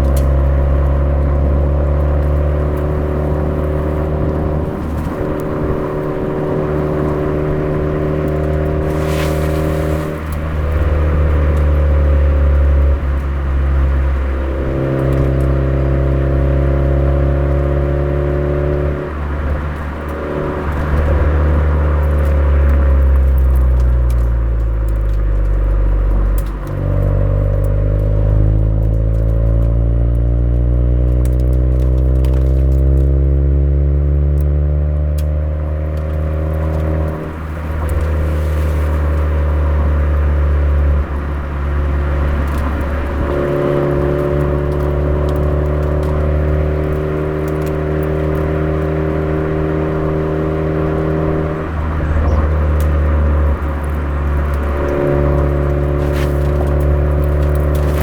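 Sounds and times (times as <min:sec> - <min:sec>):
car engine accelerating: 0:00.0 - 0:58.0.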